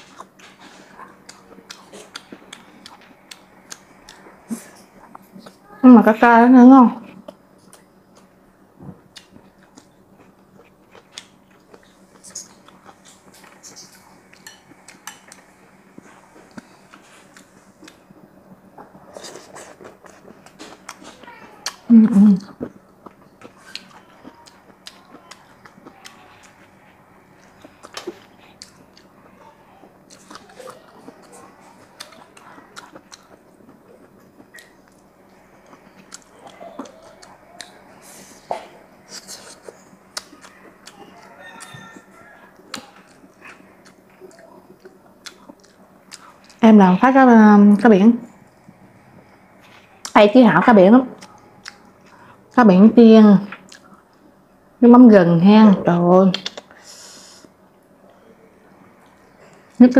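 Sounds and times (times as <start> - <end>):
person chewing food: 0.0 - 5.6, 7.1 - 8.4, 9.0 - 46.6, 51.2 - 52.6, 53.5 - 54.4.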